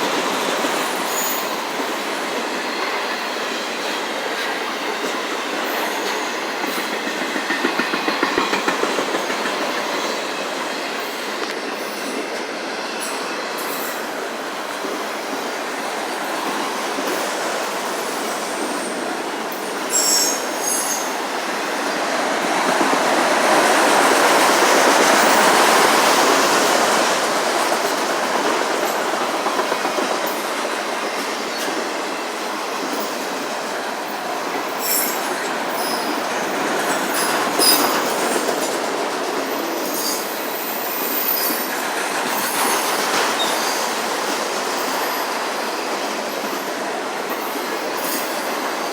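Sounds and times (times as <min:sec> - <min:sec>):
freight train wheels rattling on track: 0:00.0 - 0:48.9
high wheel squeals: 0:19.9 - 0:21.3, 0:34.7 - 0:38.1, 0:39.8 - 0:41.8.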